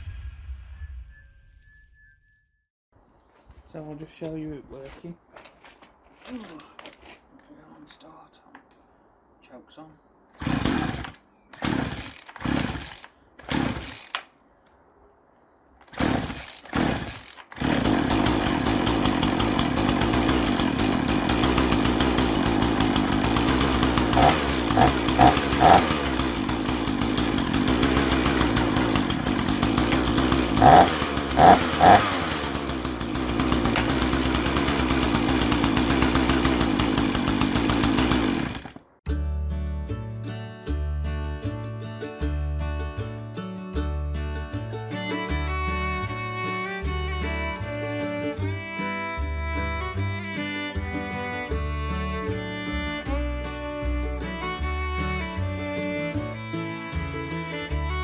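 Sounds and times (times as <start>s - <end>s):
chainsaw starter cord pulls: 6.2s - 7.2s, 10.4s - 14.3s, 15.8s - 39.0s
chainsaw engine running: 10.4s - 14.3s, 15.9s - 38.9s
chainsaw revving: 10.4s - 14.3s, 15.9s - 38.9s.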